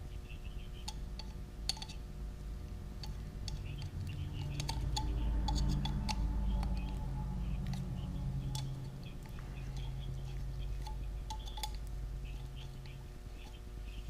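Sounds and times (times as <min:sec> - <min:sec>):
steady low hum: 0:00.0 - 0:14.0
hand tools clicking and tapping metal: 0:00.8 - 0:02.0, 0:03.0 - 0:13.7.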